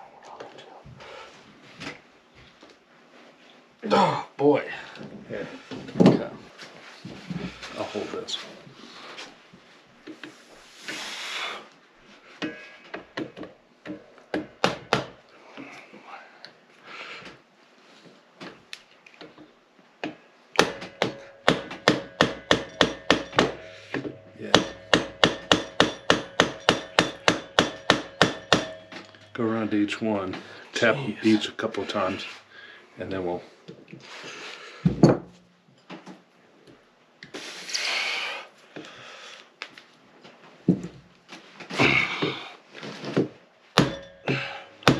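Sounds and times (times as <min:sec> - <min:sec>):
sharp knocks: 0:20.6 - 0:29.2
hand tools knocking on engine parts: 0:20.6 - 0:29.3.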